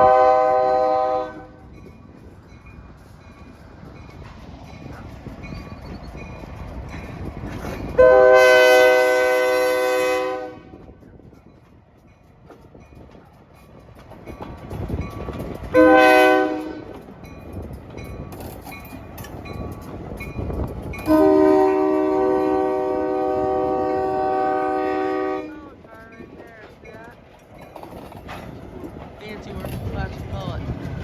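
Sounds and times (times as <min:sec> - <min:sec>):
locomotive air horn blasts: 0:00.0 - 0:01.6, 0:08.0 - 0:10.8, 0:15.8 - 0:16.9, 0:21.0 - 0:25.6
locomotive rumble: 0:00.0 - 0:31.0.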